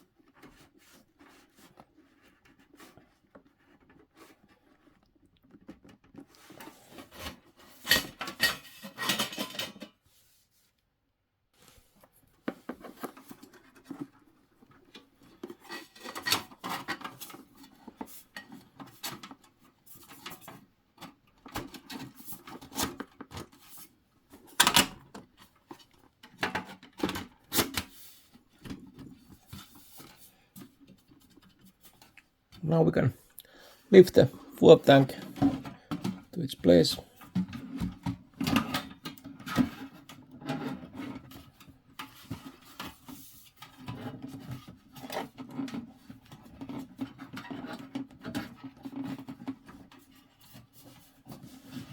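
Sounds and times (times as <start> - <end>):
clicks and scrapes of metal parts: 6.4 - 10.0, 15.4 - 23.8.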